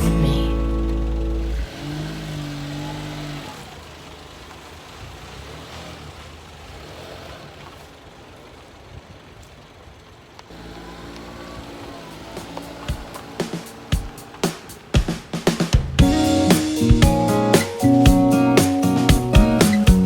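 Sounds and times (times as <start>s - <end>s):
music track: 0.0s - 1.6s, 16.0s - 20.0s
vehicle engine rumbling with hiss: 0.0s - 20.0s
steady tones: 12.1s - 20.0s.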